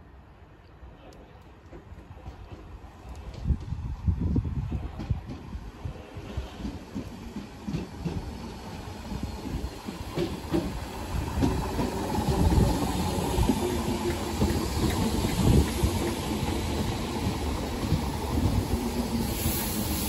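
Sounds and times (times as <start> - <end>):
train wheels rumbling on rails: 1.1 - 20.0
clacks over rail joints: 6.5 - 8.5, 9.4 - 18.6
steady hiss: 18.6 - 20.0.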